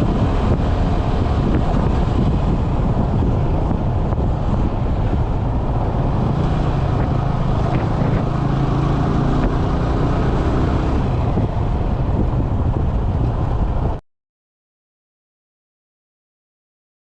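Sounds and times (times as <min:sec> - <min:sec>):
motorcycle engine running: 0:00.0 - 0:14.0
wind rush on microphone: 0:00.0 - 0:14.0.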